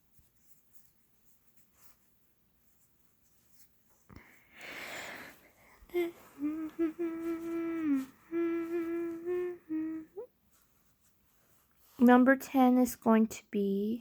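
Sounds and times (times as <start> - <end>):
girl humming: 5.9 - 10.3.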